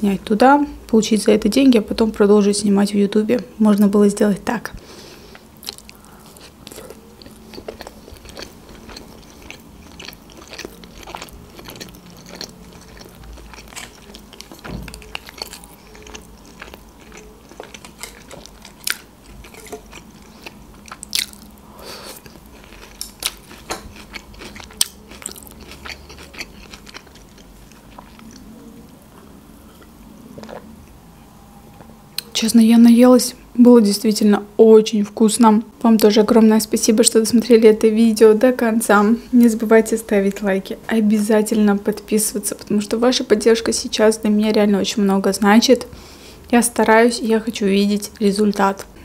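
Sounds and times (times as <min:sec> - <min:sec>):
chewing with crisp crunches: 0:05.2 - 0:31.0.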